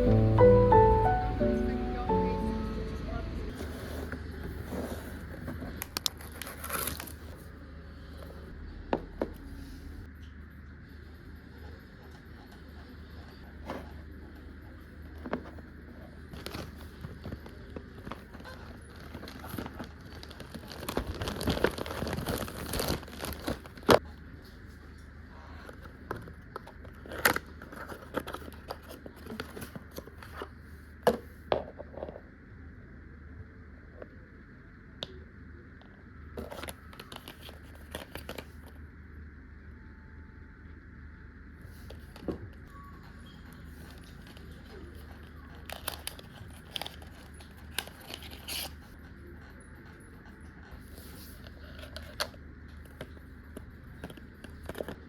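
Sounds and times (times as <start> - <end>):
packaging crinkling and rustling: 5.7 - 7.4, 16.4 - 24.0, 36.4 - 38.6, 43.8 - 48.8.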